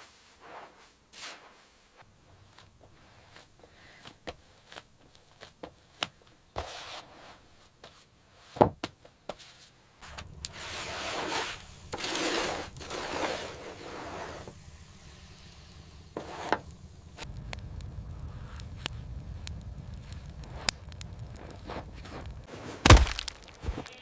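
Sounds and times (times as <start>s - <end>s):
scraping or rubbing by hand: 0.0s - 2.0s, 6.6s - 8.6s, 10.5s - 14.6s, 16.1s - 16.7s, 21.4s - 22.8s.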